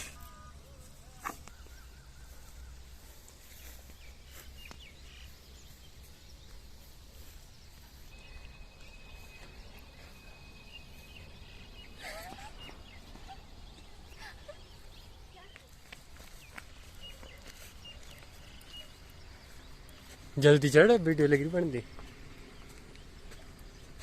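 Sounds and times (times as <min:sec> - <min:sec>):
faint high chirps: 0:00.0 - 0:15.8.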